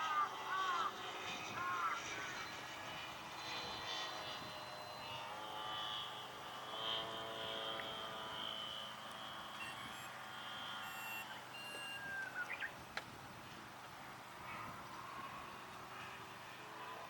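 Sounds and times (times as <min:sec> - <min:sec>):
model airplane propeller drone: 0:00.0 - 0:17.0
short high beeps: 0:09.6 - 0:10.1, 0:10.8 - 0:12.4.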